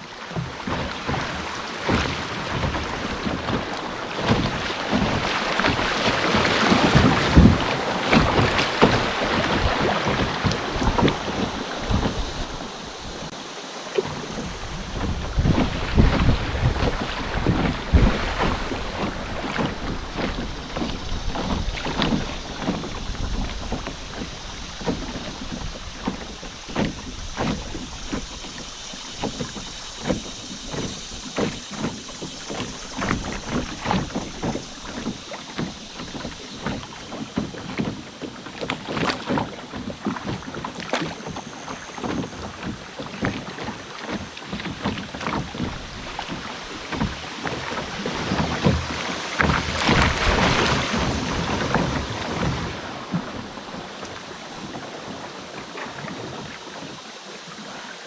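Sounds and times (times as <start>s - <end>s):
water lapping around canoe: 0.0s - 58.0s
small splashes and drips: 16.8s - 57.0s.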